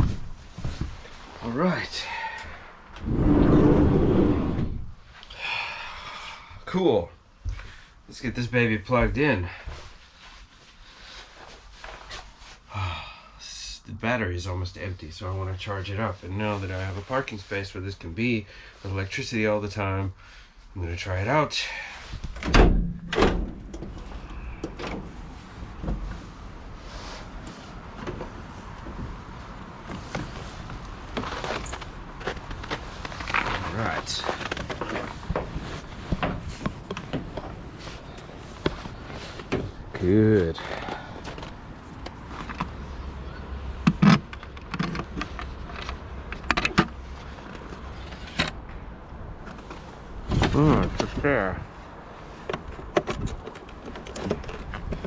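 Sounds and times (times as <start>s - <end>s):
wind buffeting microphone: 3.0s - 5.0s.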